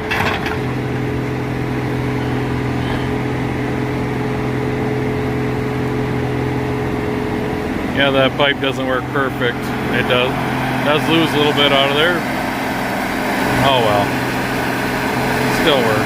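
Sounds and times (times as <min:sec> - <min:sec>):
diesel engine humming: 0:00.0 - 0:16.0.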